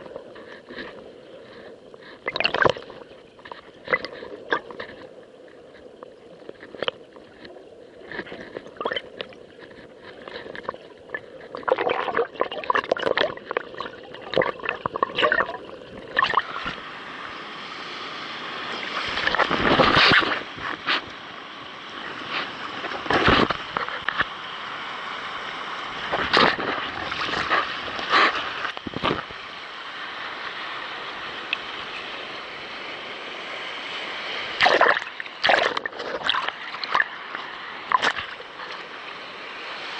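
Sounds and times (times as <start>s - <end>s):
water slapping a kayak hull: 0.0s - 16.9s, 18.6s - 21.1s, 22.0s - 24.4s, 25.9s - 29.4s, 34.4s - 39.9s.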